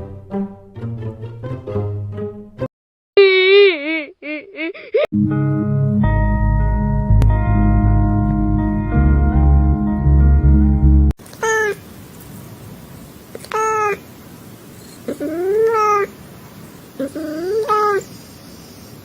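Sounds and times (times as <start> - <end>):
cat meowing: 15.1 - 16.1, 17.0 - 18.1.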